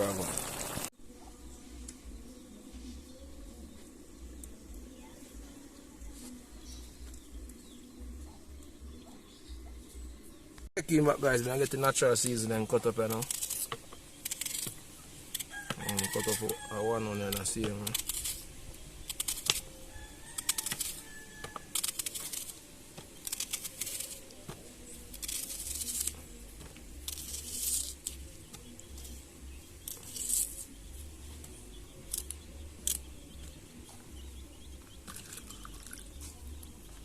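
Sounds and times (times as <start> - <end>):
knife slicing vegetables: 20.4 - 28.7.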